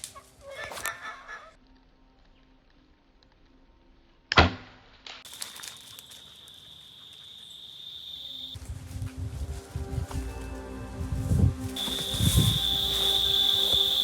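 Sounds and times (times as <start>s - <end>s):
high-pitched tone: 11.8s - 14.0s.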